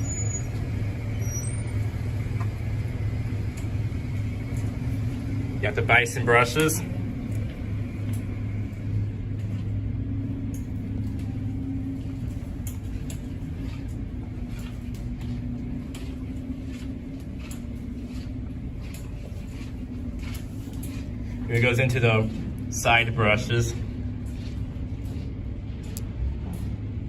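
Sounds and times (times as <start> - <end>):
car wash machinery rumble: 0.0 - 27.0
light ticks of water and brushes: 12.1 - 26.1.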